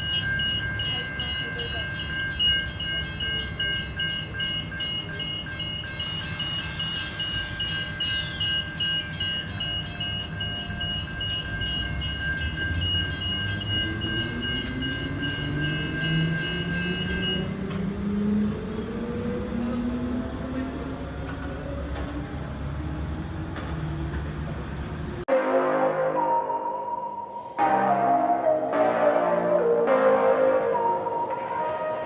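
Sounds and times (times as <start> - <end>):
level crossing warning bells: 0.0 - 22.5
train traction motors whining: 0.0 - 25.2.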